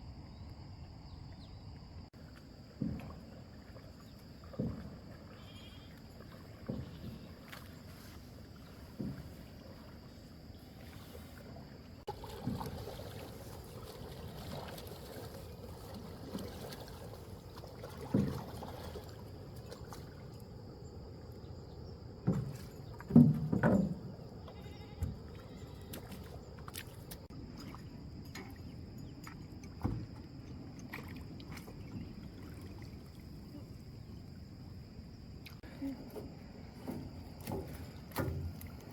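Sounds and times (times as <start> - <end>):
water sloshing: 2.1 - 38.9
knocks on a boat: 2.7 - 3.3, 8.9 - 9.4, 22.2 - 24.2, 29.8 - 30.2.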